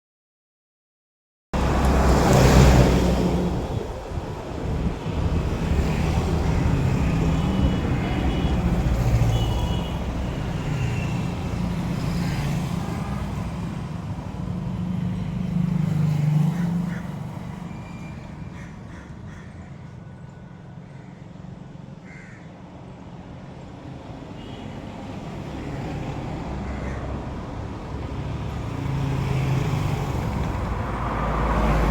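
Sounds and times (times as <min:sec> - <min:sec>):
vehicle engine rumbling: 0:01.6 - 0:12.0.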